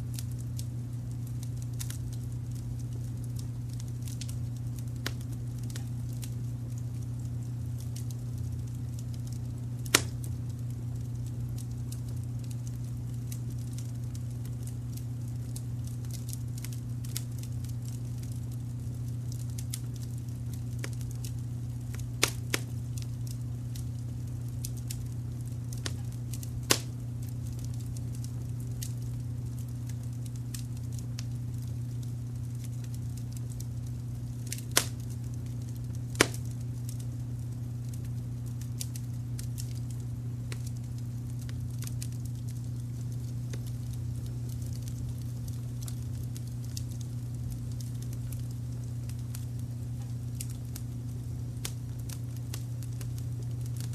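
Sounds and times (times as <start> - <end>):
low brown noise rumble: 0.0 - 53.9
wood fire crackling: 0.0 - 53.9
sharp pops: 26.7 - 26.9, 34.5 - 35.0, 36.2 - 36.5.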